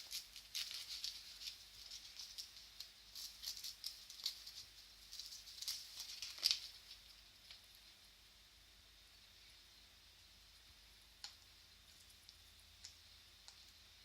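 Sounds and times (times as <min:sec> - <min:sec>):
newspaper rustling and crackling: 0:00.0 - 0:07.6.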